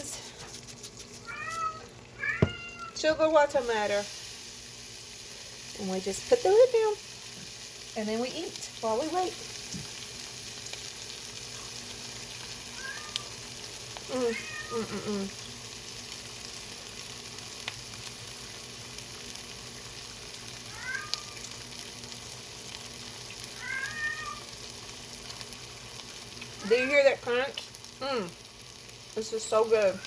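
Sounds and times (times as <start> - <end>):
food sizzling in waffle maker: 0.0 - 30.0
cat meowing: 1.2 - 3.0, 12.8 - 13.3, 14.1 - 14.9, 20.7 - 21.5, 23.6 - 24.5.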